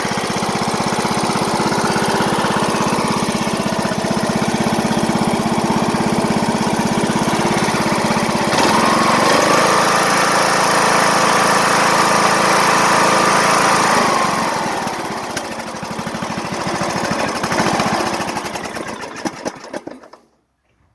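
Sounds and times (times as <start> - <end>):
single-cylinder engine running: 0.0 - 20.3.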